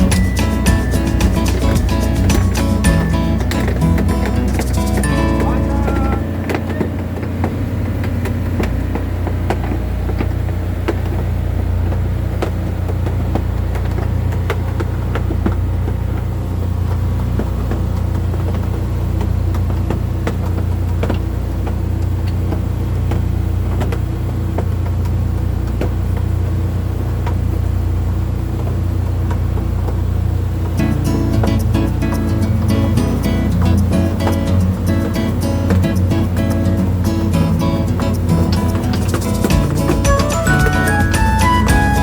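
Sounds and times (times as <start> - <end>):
sharp clicks and knocks: 0.0 - 26.3, 30.7 - 42.0
boat engine running: 0.0 - 42.0.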